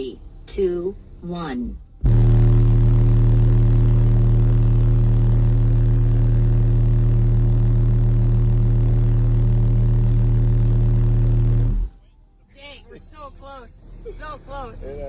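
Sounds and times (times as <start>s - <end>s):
subwoofer bass test tone: 0.0s - 12.0s.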